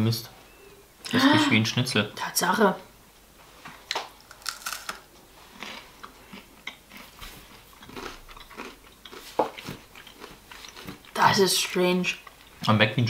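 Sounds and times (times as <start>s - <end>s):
crunchy chewing: 4.2s - 11.2s.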